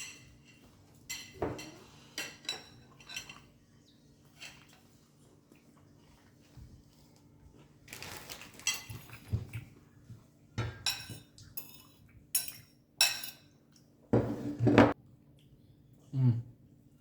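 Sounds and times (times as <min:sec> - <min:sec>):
dishes and cutlery clattering: 0:00.0 - 0:03.6, 0:04.2 - 0:05.0, 0:08.4 - 0:09.6, 0:10.6 - 0:13.6.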